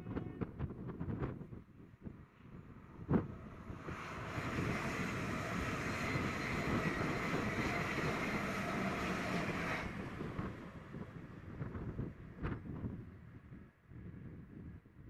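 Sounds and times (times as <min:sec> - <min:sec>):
passing train rushing: 0:02.2 - 0:12.5.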